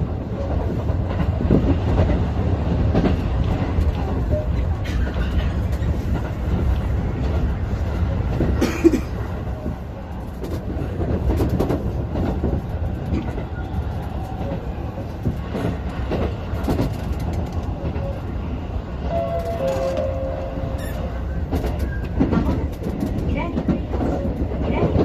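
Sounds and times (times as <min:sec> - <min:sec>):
train rumbling on track: 0:00.0 - 0:25.0
wheels clacking over rail joints: 0:19.1 - 0:25.0.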